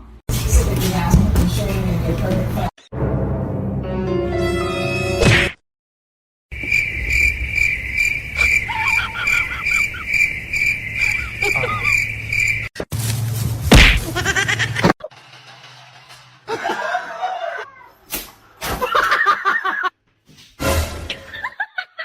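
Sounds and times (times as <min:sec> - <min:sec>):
high-pitched pulsing chirping: 0:06.6 - 0:12.7.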